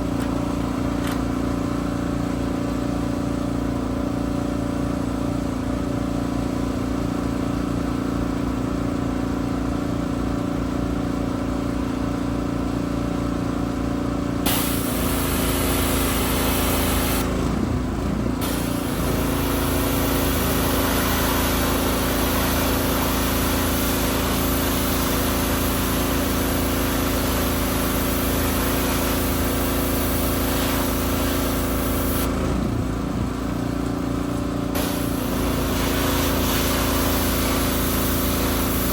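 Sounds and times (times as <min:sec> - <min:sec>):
pressure washer engine running: 0:00.0 - 0:38.9
high-pressure water spray hissing: 0:14.5 - 0:17.3, 0:18.4 - 0:32.4, 0:34.8 - 0:38.9.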